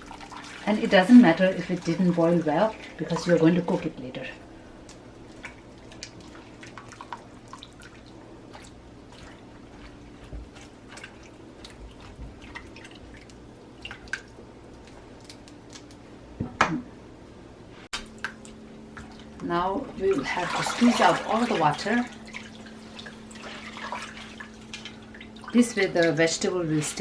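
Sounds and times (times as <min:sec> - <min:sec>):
steady low hum: 0:00.0 - 0:27.0
water drips and pops: 0:18.0 - 0:19.3.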